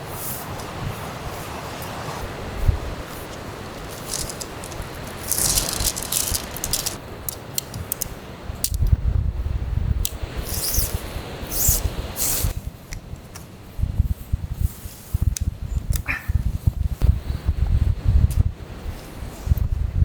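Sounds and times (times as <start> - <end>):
wind buffeting microphone: 0.4 - 10.3, 13.7 - 20.0
tent fabric rattling and rustling: 2.2 - 7.0
sharp clicks of gear: 3.3 - 9.0.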